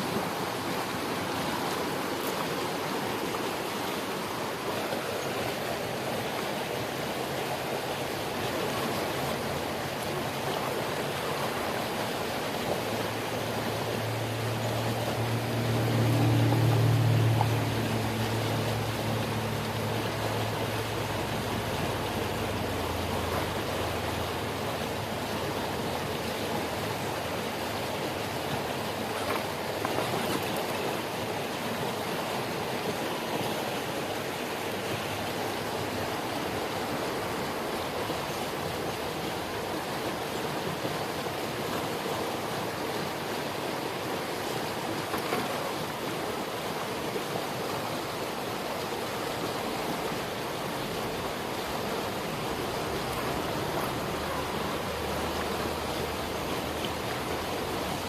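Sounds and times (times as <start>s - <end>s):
creek water rushing over rocks: 0.0s - 58.0s
low motor hum: 12.2s - 30.0s.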